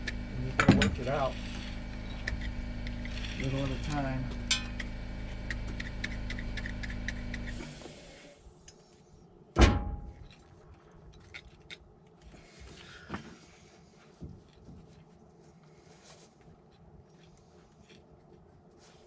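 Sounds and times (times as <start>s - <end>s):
steady mechanical hum: 0.0s - 19.0s
sharp metallic clank: 9.6s - 10.2s.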